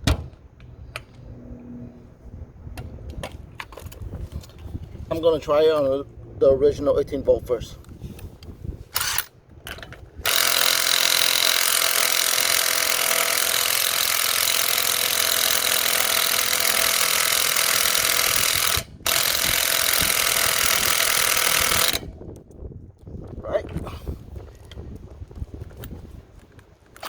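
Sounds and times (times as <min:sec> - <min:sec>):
impact driver hammering: 0:10.3 - 0:22.1.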